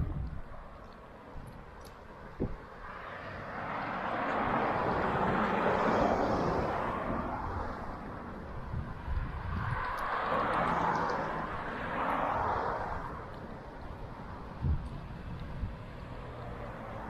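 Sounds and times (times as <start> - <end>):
vehicle passing by: 2.8 - 13.3.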